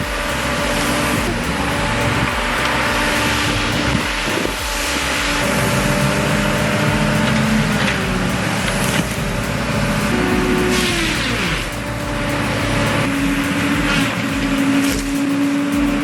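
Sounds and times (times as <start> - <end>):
dense rushing noise: 0.0 - 16.0
machinery engine drone: 0.0 - 16.0.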